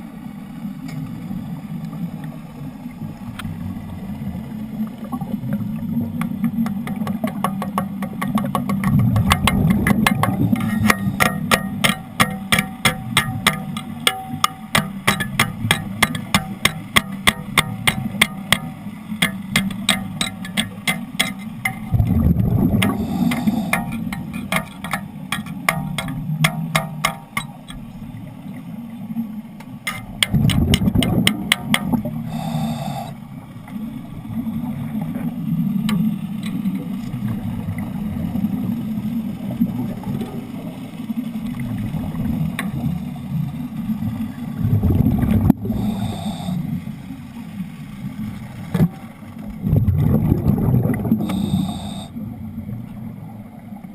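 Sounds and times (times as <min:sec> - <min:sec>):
gas bubbling underwater: 0:02.8 - 0:07.4, 0:08.1 - 0:11.8, 0:21.6 - 0:24.6, 0:30.1 - 0:33.2, 0:41.5 - 0:46.8, 0:49.4 - 0:52.9.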